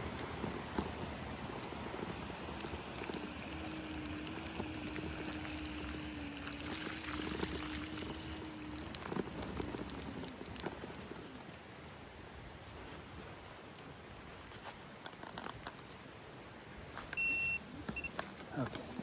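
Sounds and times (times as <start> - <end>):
faint steady hum: 0.0 - 14.7.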